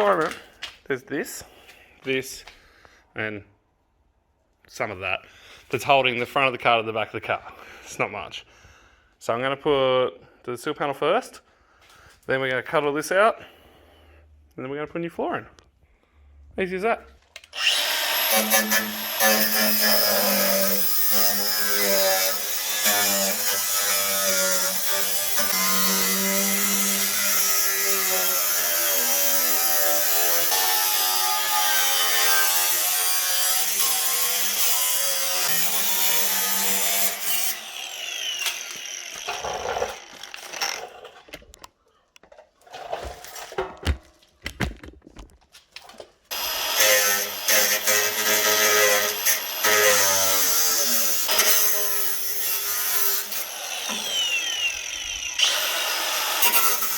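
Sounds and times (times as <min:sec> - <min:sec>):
power tool cutting sheet metal: 0:17.5 - 0:41.2, 0:46.3 - 0:56.9.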